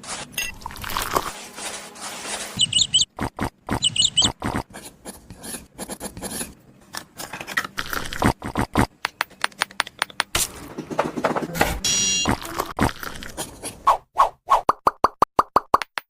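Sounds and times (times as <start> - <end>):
scratching and scraping: 0.0 - 3.1, 4.3 - 8.8
high chirps: 2.6 - 4.4.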